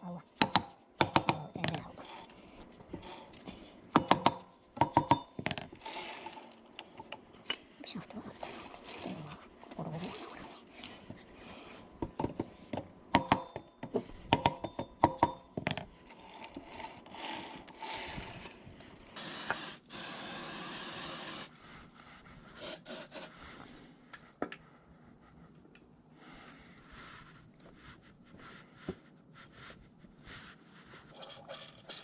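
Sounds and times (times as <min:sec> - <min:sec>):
steady hiss: 0:19.0 - 0:21.8.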